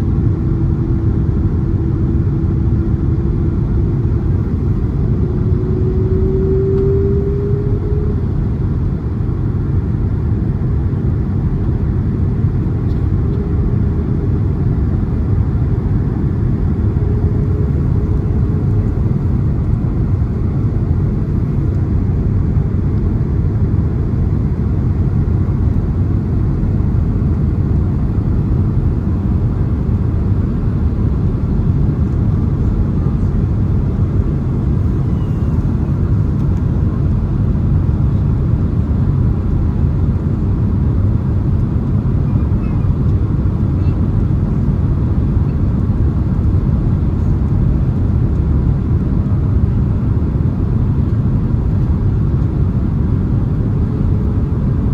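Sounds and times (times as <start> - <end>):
airliner cabin rumble: 0.0 - 54.9.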